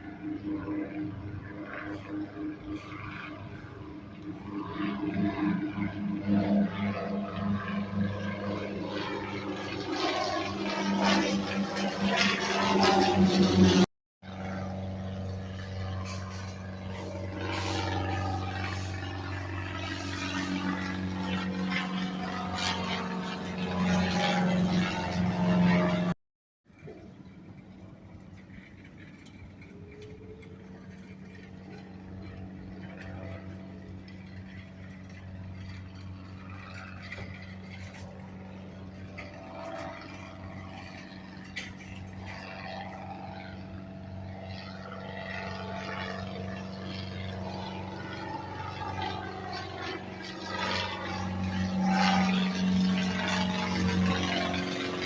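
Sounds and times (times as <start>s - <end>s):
airplane engine drone: 0.0s - 55.0s.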